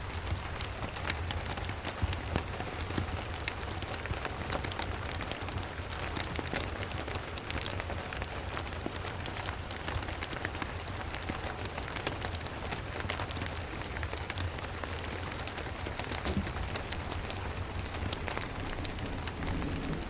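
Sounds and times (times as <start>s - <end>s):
steady rain: 0.0s - 20.0s
wood fire crackling: 0.0s - 20.0s
low rumble: 16.4s - 20.0s.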